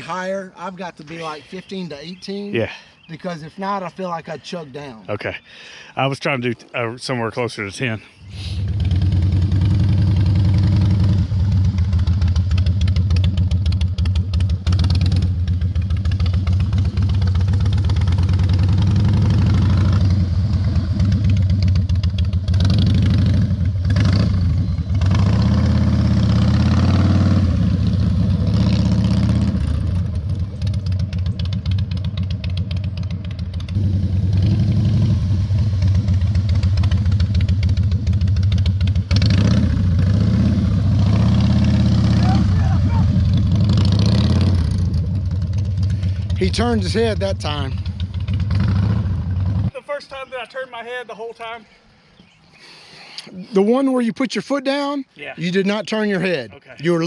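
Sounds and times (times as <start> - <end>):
motorcycle engine at low speed: 8.6 - 49.7.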